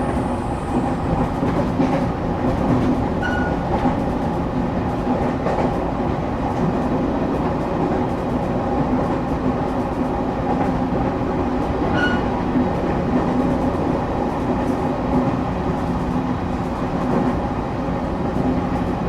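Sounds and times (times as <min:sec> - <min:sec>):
train wheels rumbling on rail: 0:00.0 - 0:19.0
brief high squeak: 0:03.2 - 0:03.6, 0:11.9 - 0:12.4.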